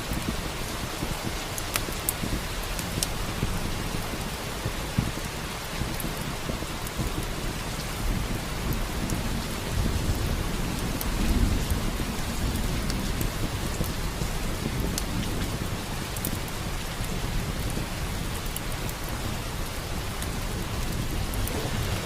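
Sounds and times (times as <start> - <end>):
low thunder rumble: 0.0 - 22.0
steady rain: 0.0 - 22.0
wood fire crackling: 0.0 - 22.0.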